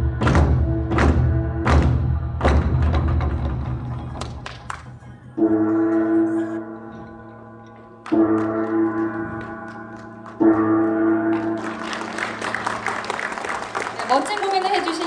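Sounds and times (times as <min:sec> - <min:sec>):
gong ringing: 0:05.4 - 0:13.2.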